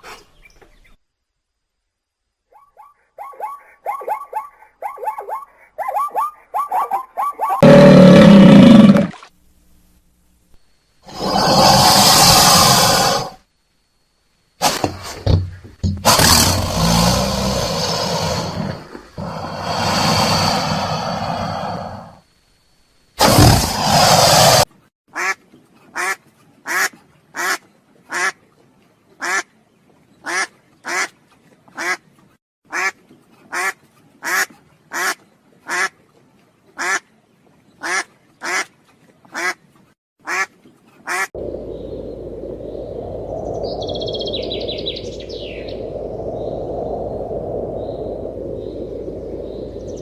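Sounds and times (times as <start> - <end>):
outdoor background noise: 0.0 - 50.0
animal calling: 2.5 - 9.0
bird chirps: 41.7 - 46.6.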